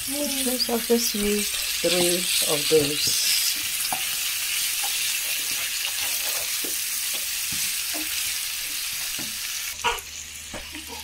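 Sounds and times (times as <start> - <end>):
food sizzling in a pan: 0.0 - 11.0
wooden spoon scraping a pan: 3.8 - 8.2.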